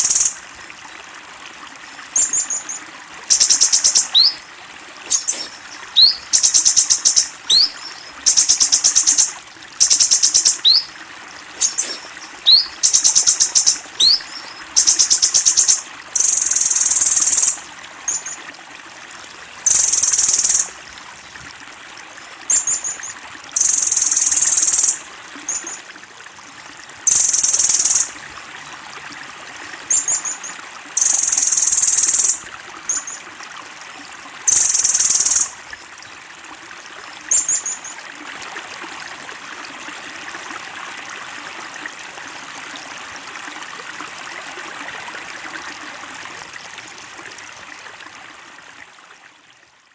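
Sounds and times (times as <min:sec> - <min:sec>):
sunbird song bursts: 0:02.2 - 0:04.4, 0:05.1 - 0:10.9, 0:11.6 - 0:17.6.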